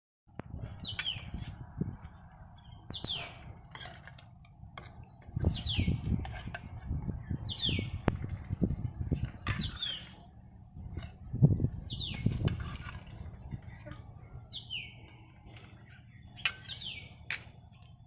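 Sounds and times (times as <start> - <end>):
low rumbling: 4.4 - 16.4.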